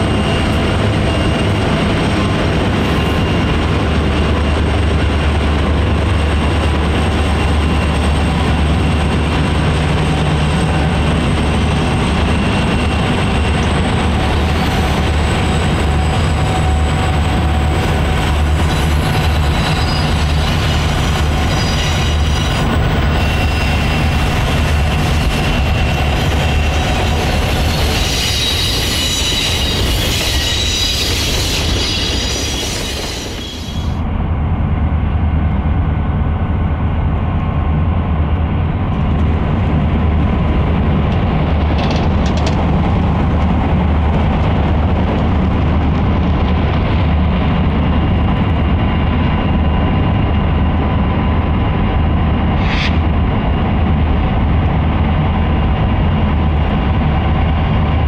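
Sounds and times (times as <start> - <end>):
train wheels squealing: 0.0 - 4.6, 6.1 - 34.0, 52.5 - 53.5
diesel locomotive engine rumble: 0.0 - 58.0.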